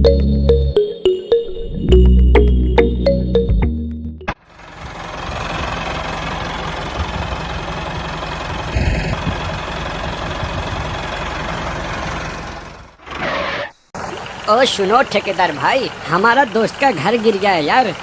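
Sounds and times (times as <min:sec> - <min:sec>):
tractor engine idling: 0:04.3 - 0:13.2, 0:14.0 - 0:18.0.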